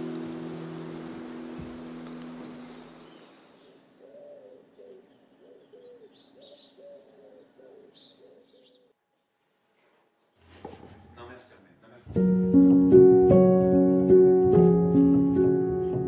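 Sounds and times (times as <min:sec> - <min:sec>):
high bird chirps: 0:00.0 - 0:06.8.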